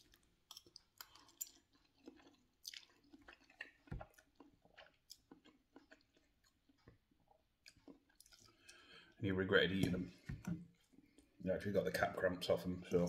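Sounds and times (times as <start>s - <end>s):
wet chewing of noodles: 0.0s - 9.2s.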